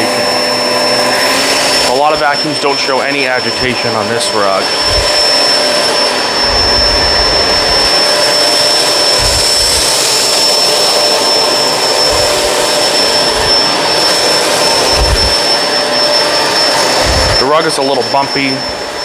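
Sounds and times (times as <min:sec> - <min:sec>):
upright vacuum running: 0:00.0 - 0:19.0
low bumps: 0:04.6 - 0:05.3, 0:06.4 - 0:08.0, 0:09.1 - 0:10.0, 0:12.0 - 0:13.7, 0:14.8 - 0:15.4, 0:17.0 - 0:17.4.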